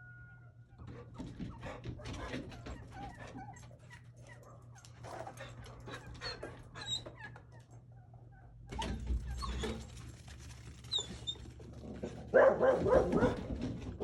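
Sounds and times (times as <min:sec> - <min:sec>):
dogs whining and yipping: 0:00.0 - 0:10.1, 0:10.7 - 0:11.7.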